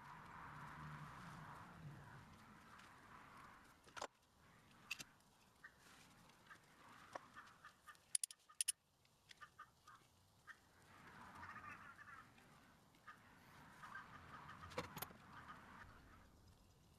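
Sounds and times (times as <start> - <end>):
short clicks: 8.1 - 8.7.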